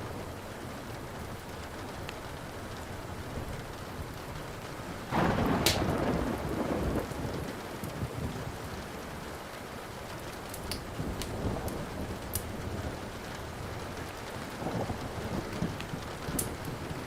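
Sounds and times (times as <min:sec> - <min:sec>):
steady rain: 0:00.0 - 0:17.0
wood fire crackling and popping: 0:01.4 - 0:06.1, 0:10.1 - 0:17.0
thunder clap rumbling: 0:05.0 - 0:09.1, 0:10.8 - 0:17.0.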